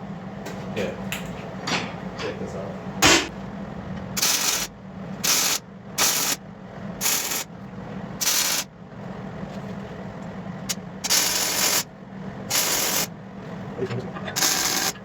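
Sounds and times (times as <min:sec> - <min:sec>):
steady low hum: 0:00.0 - 0:15.0
welding crackling bursts: 0:04.2 - 0:06.4, 0:07.0 - 0:07.5, 0:08.2 - 0:08.7, 0:11.1 - 0:11.8, 0:12.5 - 0:13.1, 0:14.4 - 0:15.0.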